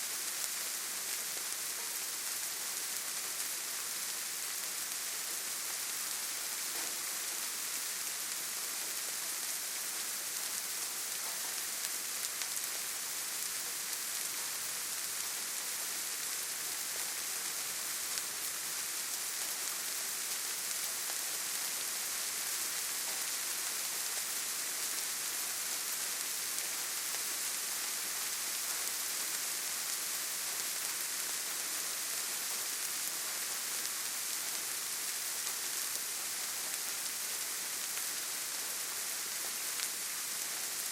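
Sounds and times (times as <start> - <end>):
rain falling on leaves: 0.0 - 40.9.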